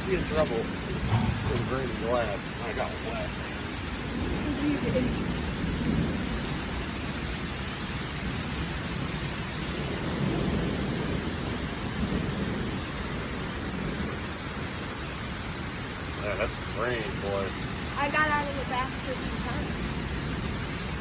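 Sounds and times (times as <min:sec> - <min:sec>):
thunder rumbling: 0:00.0 - 0:09.0, 0:09.6 - 0:14.7
heavy rain pouring: 0:00.0 - 0:21.0.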